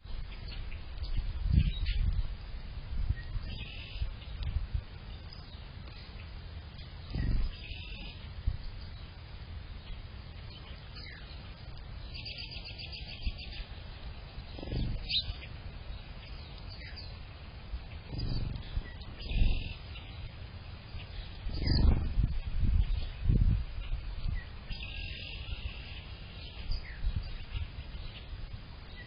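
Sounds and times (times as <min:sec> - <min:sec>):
songbirds chirping: 0:00.0 - 0:29.0
loud low rumbles: 0:06.5 - 0:09.7, 0:13.1 - 0:24.9.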